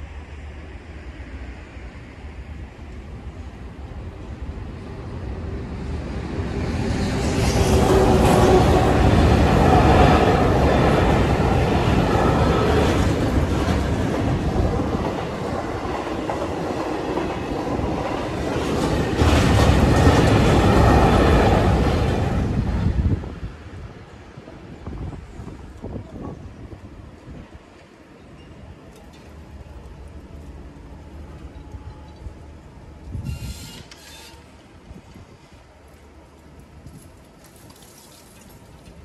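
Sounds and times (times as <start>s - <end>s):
train rail noise: 0.0s - 39.0s.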